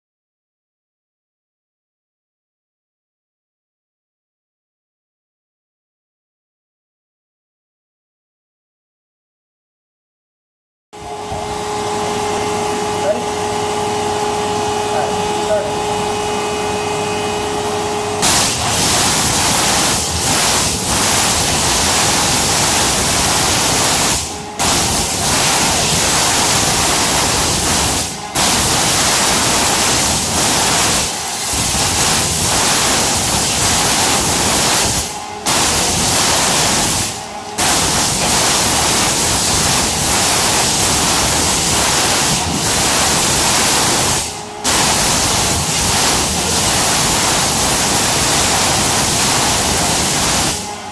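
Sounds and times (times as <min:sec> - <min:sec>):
machine humming whine: 0:11.0 - 0:50.9
water jet loud hiss: 0:18.2 - 0:50.7.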